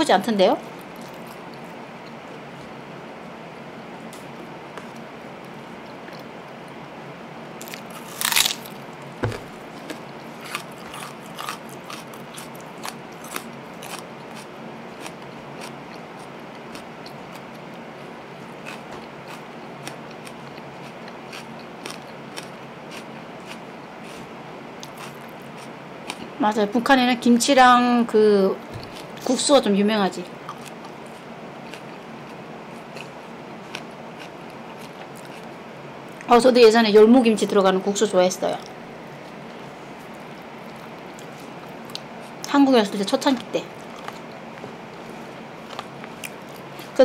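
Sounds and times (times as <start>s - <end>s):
crunching bite: 7.6s - 16.0s, 18.6s - 24.2s
crisp chewing crunches: 7.6s - 17.8s, 18.6s - 26.3s, 30.4s - 35.5s, 43.4s - 47.0s.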